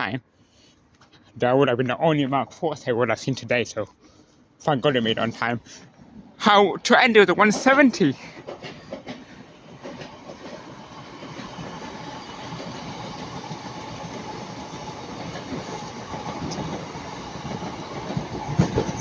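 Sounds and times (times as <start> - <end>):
train rumbling past: 4.7 - 19.0.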